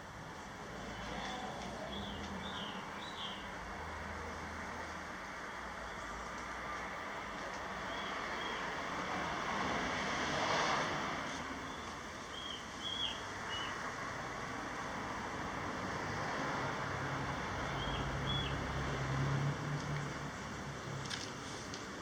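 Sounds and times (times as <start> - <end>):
outdoor rushing noise: 3.5 - 12.4.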